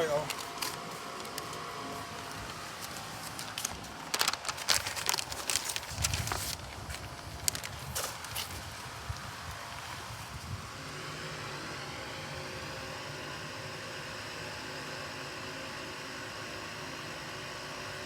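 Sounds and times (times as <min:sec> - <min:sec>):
steady mechanical drone: 0:00.0 - 0:18.0.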